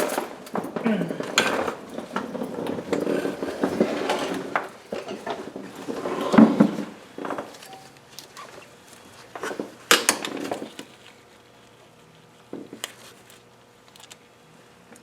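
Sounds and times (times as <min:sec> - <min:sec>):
metal chain clinking and rattling: 0:00.0 - 0:06.0.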